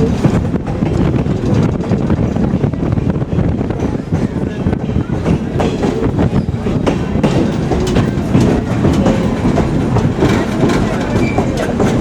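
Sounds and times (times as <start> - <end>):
train wheels clattering over rails: 0.0 - 12.0.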